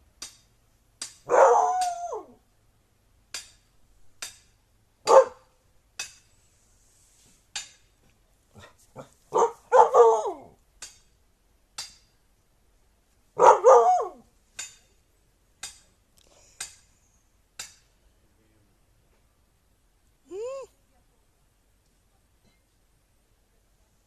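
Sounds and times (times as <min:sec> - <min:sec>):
husky howling calls: 0:01.3 - 0:02.4, 0:09.4 - 0:10.6, 0:13.4 - 0:14.2.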